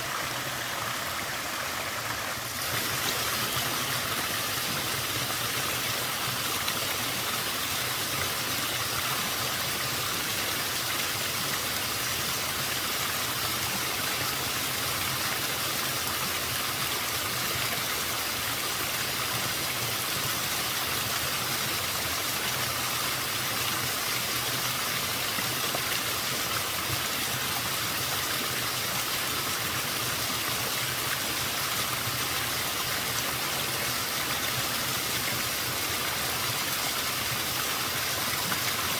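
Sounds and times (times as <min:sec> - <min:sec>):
small waterfall rushing: 0:00.0 - 0:38.9.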